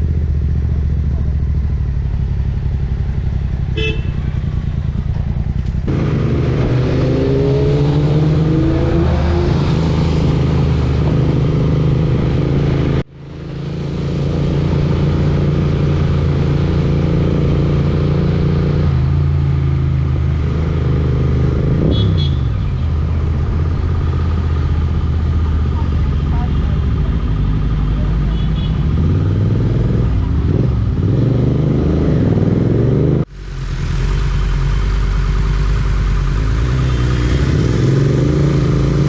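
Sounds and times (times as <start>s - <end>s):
motorcycle engine accelerating: 0.0s - 39.0s
vehicle horn toots: 3.8s - 4.3s, 21.8s - 22.8s, 28.3s - 28.9s.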